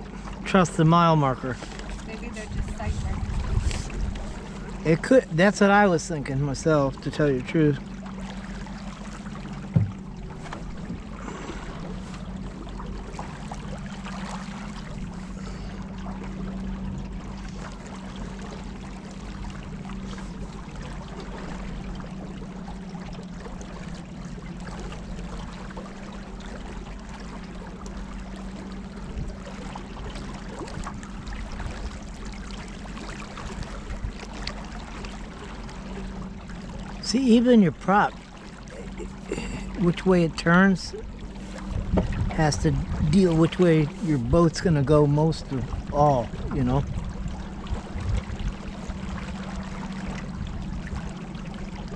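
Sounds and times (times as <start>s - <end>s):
motorboat engine humming: 0.0s - 51.9s
water rushing along hull: 0.0s - 51.9s
sharp knock: 9.7s - 10.0s.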